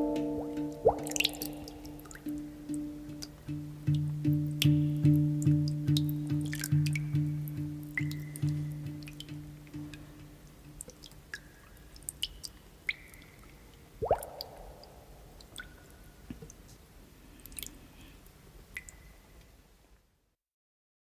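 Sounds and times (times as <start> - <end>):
water plop rising in pitch: 0.0 - 2.5, 14.0 - 15.8
plucked guitar music: 0.0 - 10.4
water drips and plinks: 0.0 - 16.7, 18.7 - 19.2.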